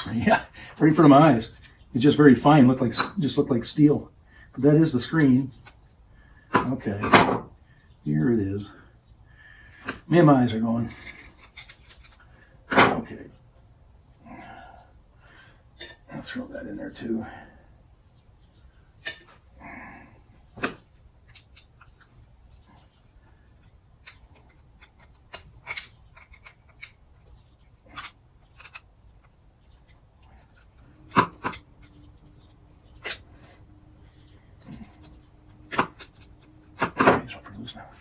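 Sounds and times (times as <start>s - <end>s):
small parts clicking and clinking: 20.6s - 38.0s.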